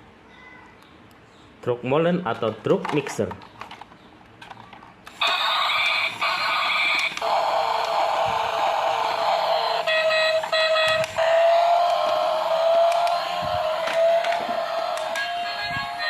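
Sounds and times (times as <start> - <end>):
toy electronic beeping tones: 5.2 - 16.0.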